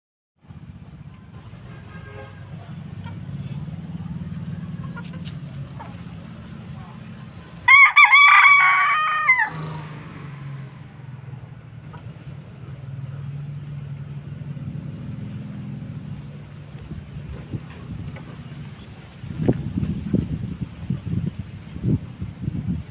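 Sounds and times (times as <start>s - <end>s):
rooster crowing: 7.7s - 9.9s.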